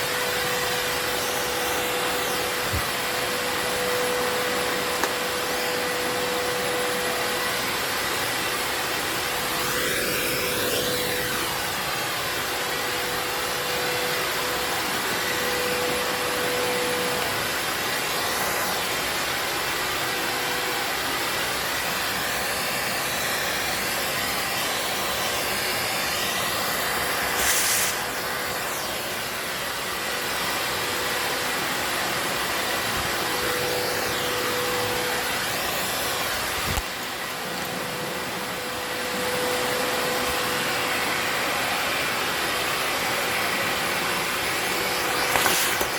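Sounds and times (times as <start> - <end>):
vacuum cleaner motor whine: 0.0 - 45.9
rush of air: 27.3 - 29.1.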